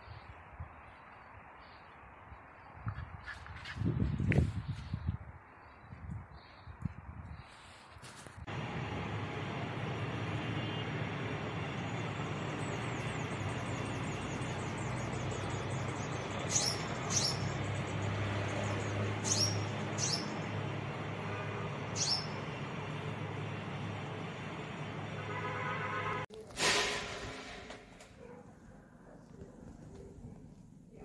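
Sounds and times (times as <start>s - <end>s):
small bird high chirps: 12.6s - 17.7s, 18.7s - 20.4s, 21.9s - 22.4s.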